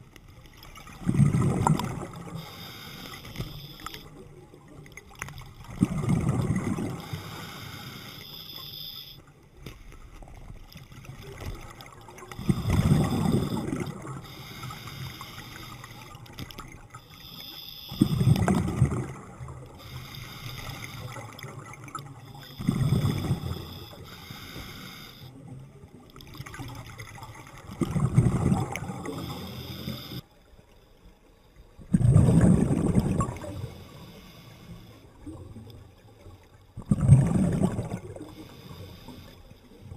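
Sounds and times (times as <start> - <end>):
exhaled bubbles gushing underwater: 0.0 - 8.7, 10.2 - 24.2, 25.3 - 30.2, 31.8 - 34.1, 35.1 - 38.9
regulator hiss: 2.3 - 4.1, 7.0 - 9.2, 12.4 - 16.2, 17.1 - 18.3, 19.8 - 21.4, 22.3 - 25.3, 29.1 - 30.2, 33.7 - 35.1, 38.4 - 39.6.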